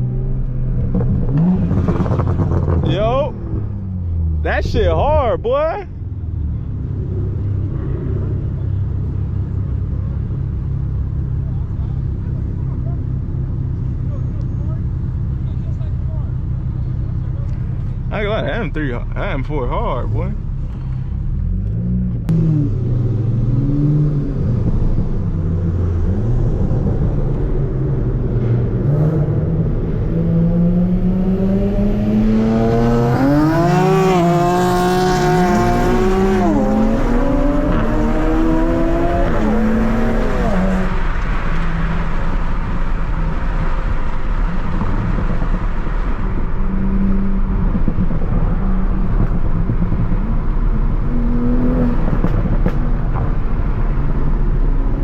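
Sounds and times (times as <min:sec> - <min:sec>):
road noise: 0:00.0 - 0:55.0
car engine accelerating hard: 0:16.9 - 0:55.0.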